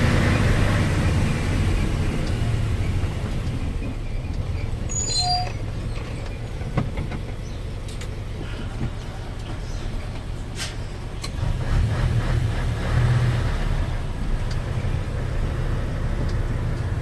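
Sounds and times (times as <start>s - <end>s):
truck diesel engine under load: 0.0s - 17.0s
high squeak: 4.6s - 5.6s.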